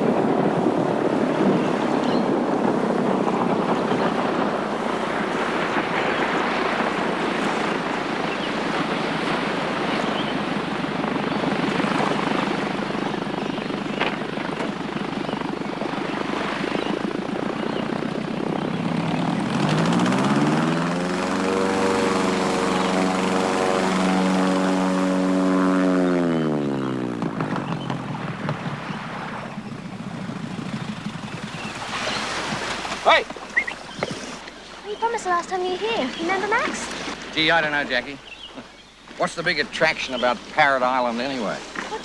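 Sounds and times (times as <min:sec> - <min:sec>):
propeller aircraft engine droning: 0:00.0 - 0:42.0.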